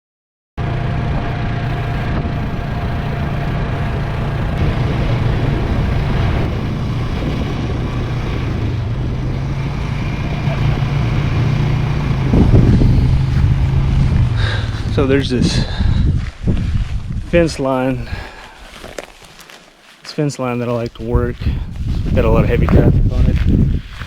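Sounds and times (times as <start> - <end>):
vehicle engine running: 0.6 - 15.8, 21.1 - 24.0
road or wind rumble: 0.6 - 19.3, 20.6 - 24.0.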